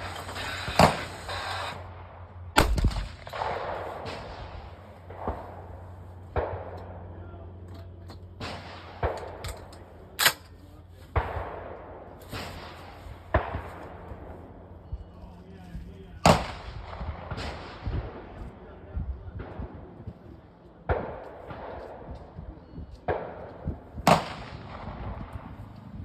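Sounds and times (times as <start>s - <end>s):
echoing gunshots: 0.0s - 7.2s, 8.4s - 10.4s, 11.1s - 14.6s, 16.2s - 18.7s, 20.8s - 22.4s, 23.1s - 25.7s.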